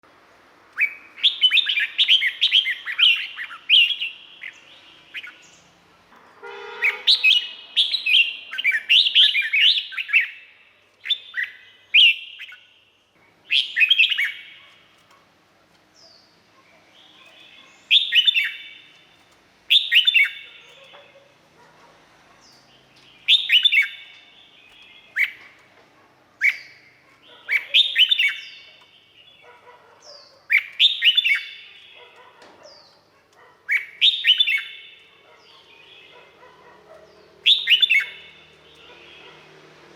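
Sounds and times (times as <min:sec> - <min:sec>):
bird singing whistled notes: 0:00.8 - 0:05.7, 0:06.8 - 0:12.8, 0:13.4 - 0:14.7, 0:17.0 - 0:19.0, 0:19.7 - 0:20.9, 0:22.5 - 0:25.4, 0:26.4 - 0:29.4, 0:30.2 - 0:32.0, 0:33.7 - 0:36.1, 0:37.1 - 0:38.9.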